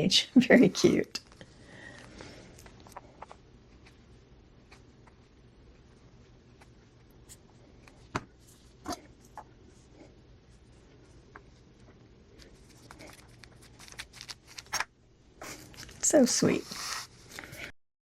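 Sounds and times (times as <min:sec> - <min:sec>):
paper rustling: 0:12.4 - 0:17.7.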